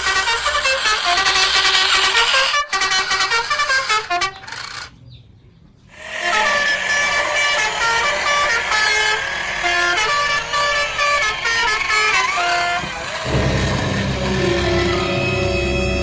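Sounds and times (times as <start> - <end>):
horn-like electronic tones: 6.2 - 16.0
deep low rumble: 13.2 - 16.0.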